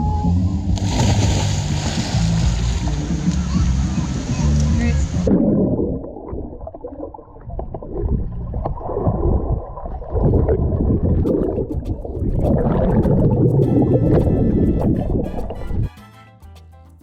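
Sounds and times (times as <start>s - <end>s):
underwater sloshing and bubbling: 3.9s - 15.8s.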